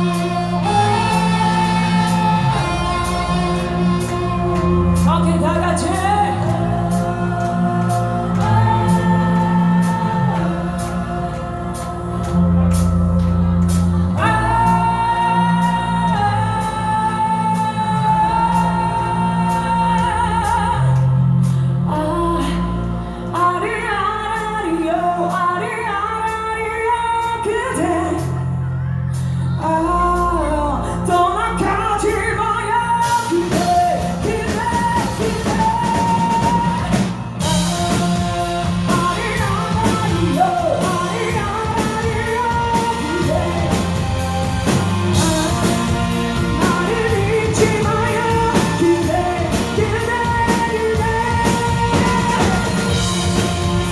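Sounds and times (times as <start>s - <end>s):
drums and cymbals: 0.0s - 20.8s, 33.0s - 53.9s
keyboard and band playing: 0.0s - 53.9s
person singing: 0.0s - 53.9s.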